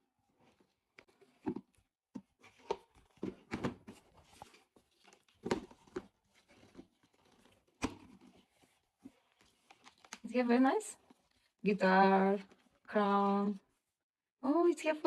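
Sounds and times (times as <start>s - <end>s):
paper rustling: 2.4s - 10.3s.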